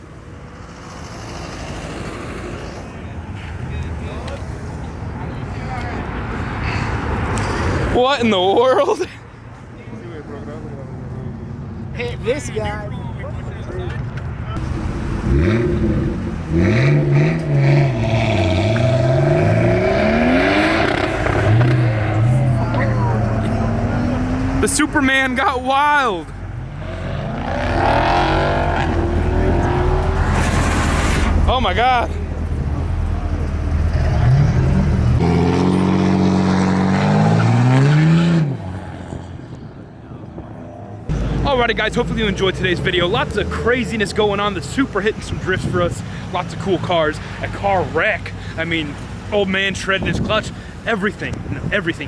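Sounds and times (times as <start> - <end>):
car engine revving: 0.6 - 3.4, 14.6 - 25.5, 26.4 - 39.5.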